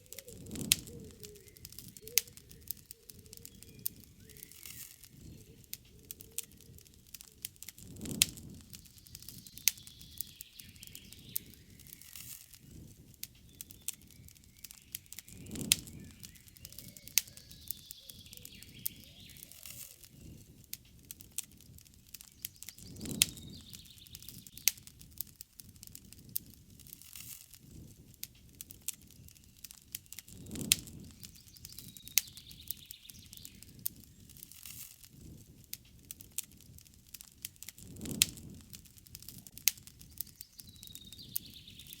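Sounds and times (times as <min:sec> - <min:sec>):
birds singing: 0:00.0 - 0:07.6, 0:08.4 - 0:20.5, 0:22.1 - 0:24.7, 0:29.2 - 0:34.4, 0:39.9 - 0:42.0
campfire crackling and popping: 0:00.0 - 0:42.0
low rush of flame: 0:00.0 - 0:42.0.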